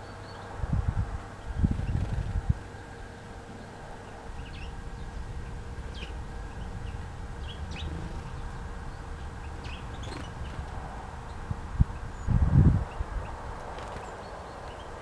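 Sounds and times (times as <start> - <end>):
low background rumble: 0.0 - 15.0
songbirds chirping: 0.0 - 15.0.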